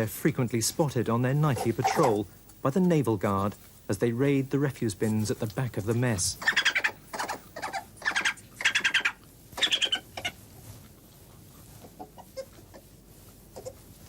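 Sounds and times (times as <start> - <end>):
faint scuffling ticks: 0.0 - 14.0
badgers squealing: 1.5 - 2.3, 6.3 - 10.4, 13.6 - 13.9.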